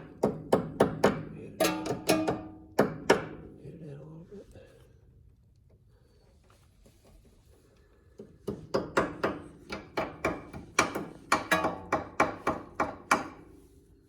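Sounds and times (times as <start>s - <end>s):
hammer tapping on metal: 0.0s - 3.5s, 8.2s - 13.5s.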